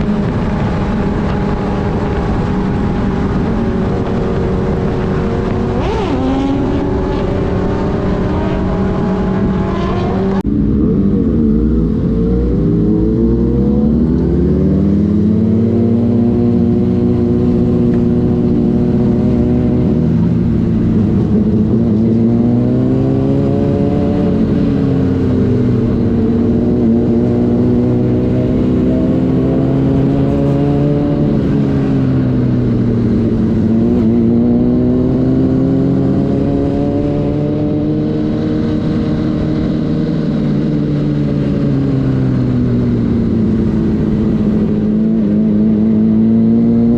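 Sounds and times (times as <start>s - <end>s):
motorcycle engine cruising: 0.0s - 46.9s.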